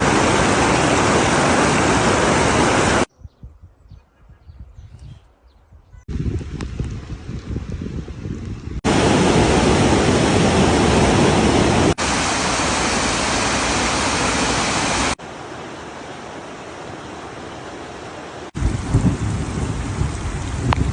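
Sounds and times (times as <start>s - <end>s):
steady outdoor rushing noise: 0.0s - 3.1s, 8.8s - 20.0s
wind buffeting microphone: 2.6s - 12.0s, 18.6s - 20.9s.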